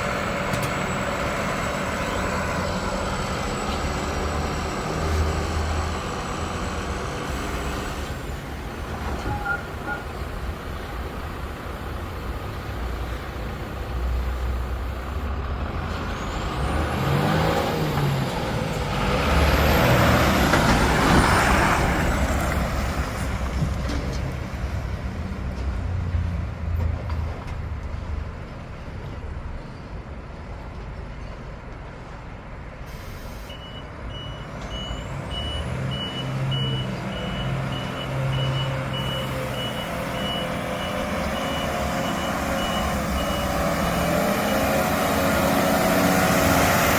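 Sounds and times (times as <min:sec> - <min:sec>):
diesel truck engine running: 0:00.0 - 0:25.5
reversing alarm beeping: 0:09.3 - 0:10.1, 0:33.0 - 0:44.9.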